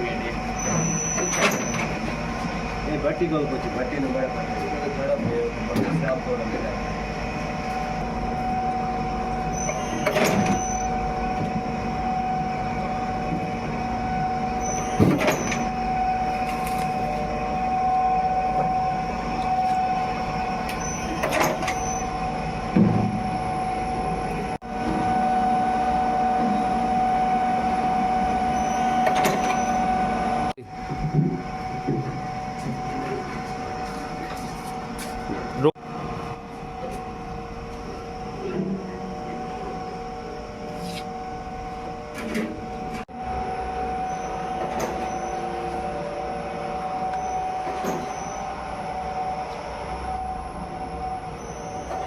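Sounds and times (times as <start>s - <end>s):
factory machinery humming: 0.0s - 52.0s.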